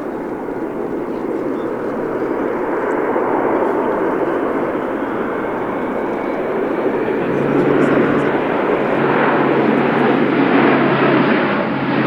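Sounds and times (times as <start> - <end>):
turboprop engines running: 0.0 - 12.0.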